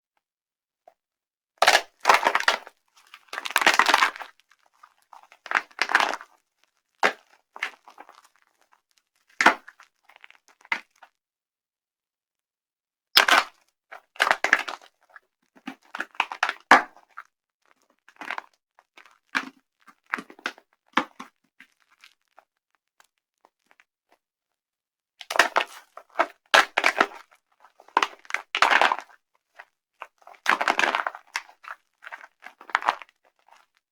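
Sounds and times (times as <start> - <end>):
dry soap crunching: 1.7 - 8.7, 25.3 - 33.7.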